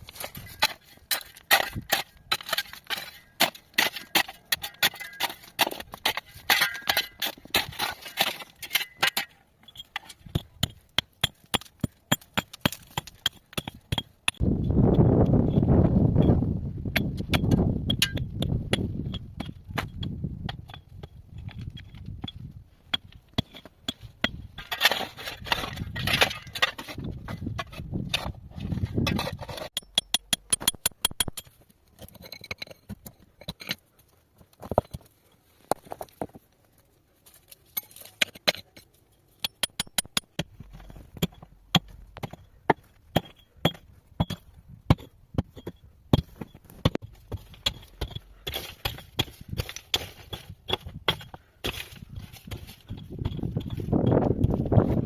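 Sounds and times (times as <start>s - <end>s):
hard objects knocking and clinking: 37.8s - 54.9s.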